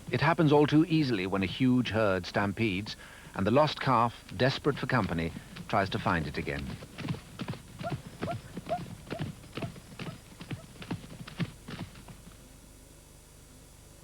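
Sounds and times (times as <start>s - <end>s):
hoofbeats of running animals: 1.4s - 12.4s.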